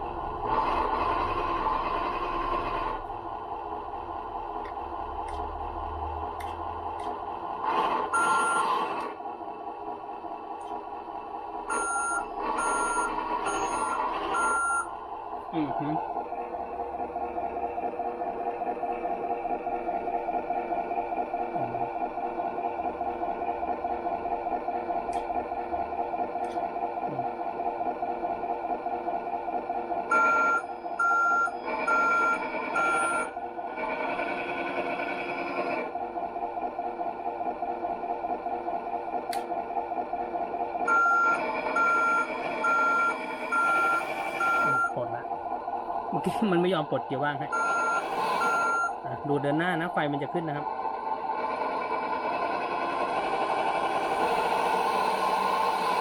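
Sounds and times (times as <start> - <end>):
simulated engine sound: 0.0 - 56.0
reversing beeps from small speaker: 8.2 - 8.7, 11.7 - 14.9, 30.1 - 33.3, 40.9 - 45.0, 47.5 - 49.0.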